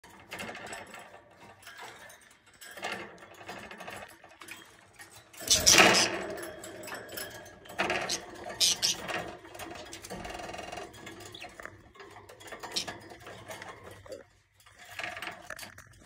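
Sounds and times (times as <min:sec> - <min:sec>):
budgerigars chattering: 0:05.5 - 0:06.1, 0:08.0 - 0:09.1.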